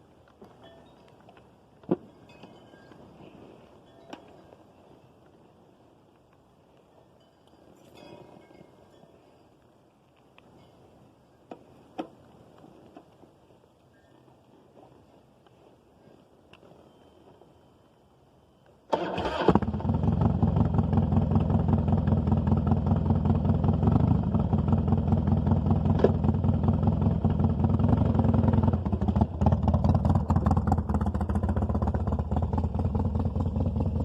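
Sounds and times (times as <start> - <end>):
starter motor cranking: 18.9 - 19.8
motorcycle engine idling: 19.6 - 34.0.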